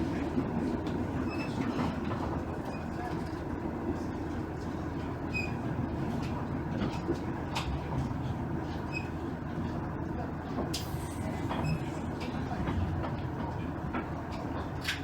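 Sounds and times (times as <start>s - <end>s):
diesel engine rumble: 5.8s - 15.0s.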